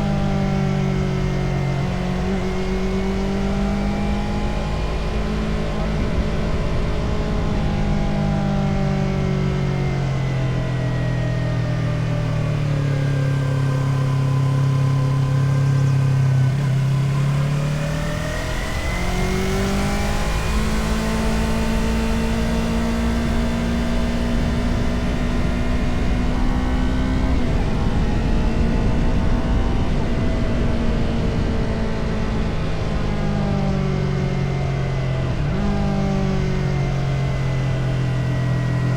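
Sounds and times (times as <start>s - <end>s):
motorcycle engine running: 0.0s - 38.9s
wind rumble on microphone: 0.0s - 38.9s.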